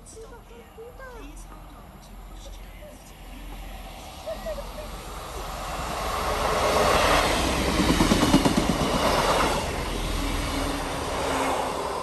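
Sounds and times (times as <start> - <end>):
train passing at speed: 0.0 - 12.0
wheels clacking over rail joints: 7.4 - 10.1.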